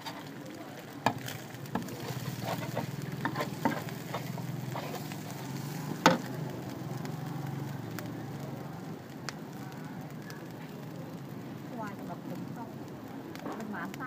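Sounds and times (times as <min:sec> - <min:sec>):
eggs frying in oil: 0:00.0 - 0:14.0
metal spatula scraping pan: 0:01.1 - 0:06.2.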